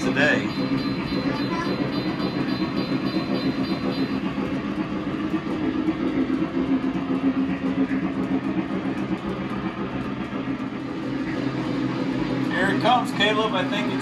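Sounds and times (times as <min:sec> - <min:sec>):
fine rapid ticking: 0:00.0 - 0:04.6
model train running on track: 0:00.0 - 0:14.0.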